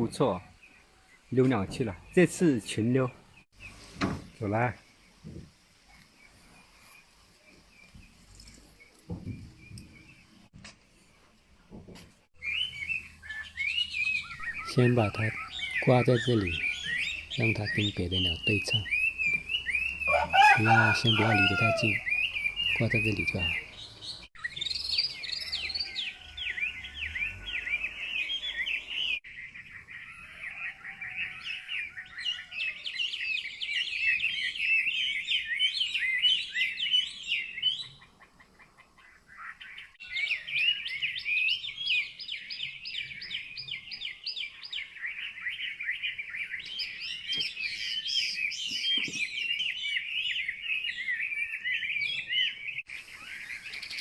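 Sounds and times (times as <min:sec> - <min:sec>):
other birds singing: 0:00.0 - 0:10.5, 0:12.4 - 0:54.0
bird warbling song: 0:12.4 - 0:54.0.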